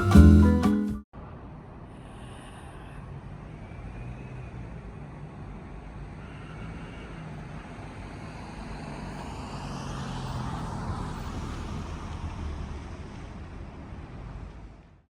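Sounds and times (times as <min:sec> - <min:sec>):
motor vehicle rumble: 0:08.0 - 0:15.0.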